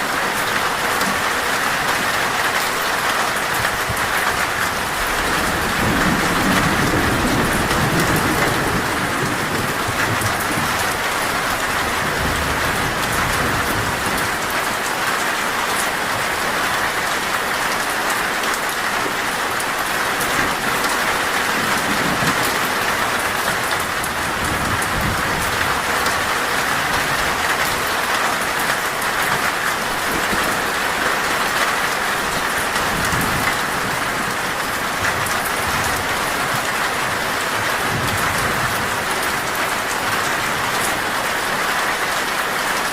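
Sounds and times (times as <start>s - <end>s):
heavy rain on a metal roof: 0.0s - 42.9s
thunder rumble: 5.0s - 14.4s.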